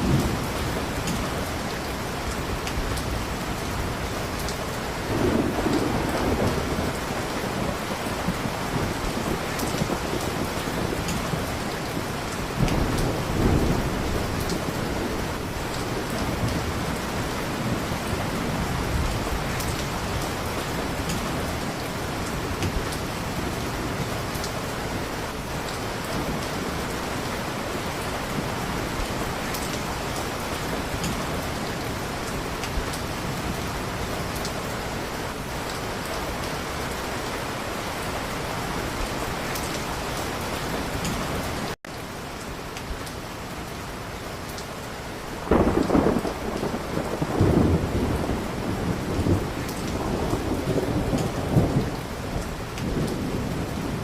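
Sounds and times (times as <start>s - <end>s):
heavy rain: 0.0s - 54.0s
thunder rolling: 5.1s - 20.0s, 45.4s - 54.0s.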